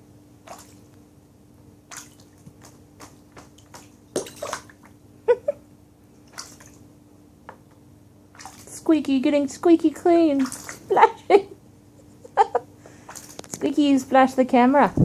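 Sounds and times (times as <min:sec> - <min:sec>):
bird splashing water: 0:00.4 - 0:00.9, 0:01.8 - 0:05.0, 0:06.2 - 0:06.9, 0:08.3 - 0:08.9, 0:10.3 - 0:11.0, 0:12.9 - 0:13.7.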